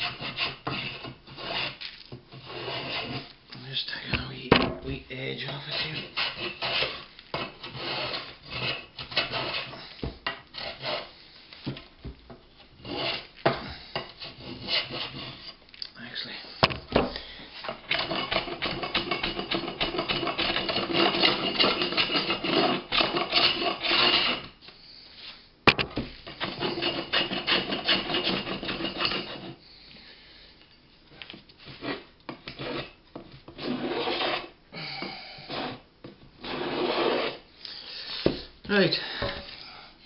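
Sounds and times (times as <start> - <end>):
hand plane scraping wood: 0.0 - 3.3, 5.2 - 11.8, 12.7 - 15.6, 17.6 - 24.6, 26.2 - 29.6, 31.6 - 34.6, 35.4 - 37.5
sharp knock: 25.7 - 26.0.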